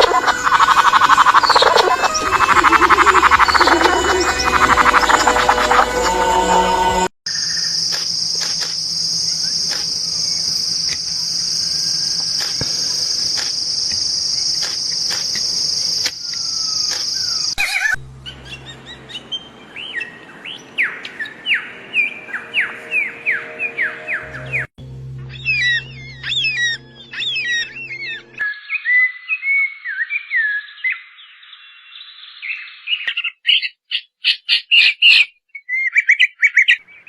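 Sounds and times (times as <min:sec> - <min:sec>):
bird calling in quick notes: 0:00.0 - 0:06.5
high-pitched insect drone: 0:00.0 - 0:17.4.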